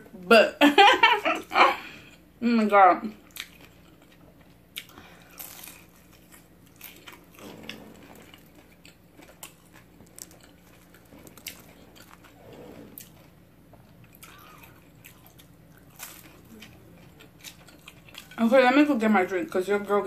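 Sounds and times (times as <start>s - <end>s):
quiet chewing: 3.2s - 18.5s
crisp food crunching: 3.3s - 18.5s.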